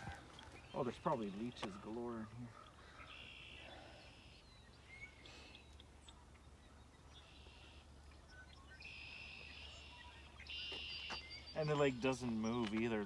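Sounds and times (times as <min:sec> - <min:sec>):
buzzy high bird trill: 0:07.2 - 0:13.0.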